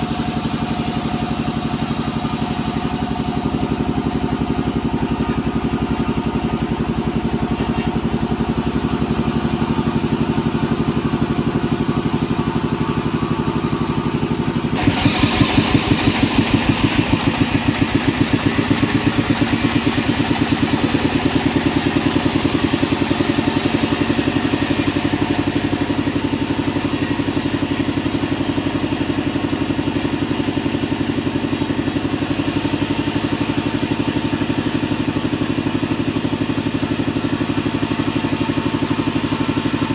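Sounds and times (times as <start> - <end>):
bandsaw running with pulsing beat: 0.0 - 39.9
saw blade cutting log: 14.8 - 31.0.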